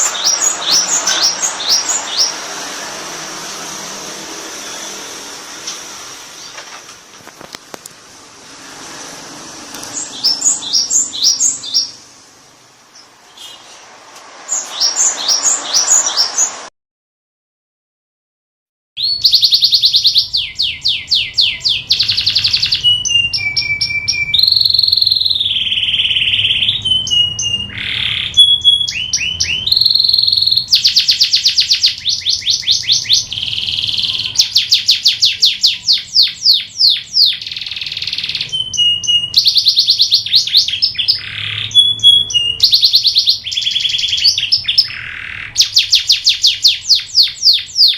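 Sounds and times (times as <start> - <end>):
canary singing trills: 0.0 - 3.8, 9.8 - 12.2, 14.5 - 16.6, 19.0 - 47.9.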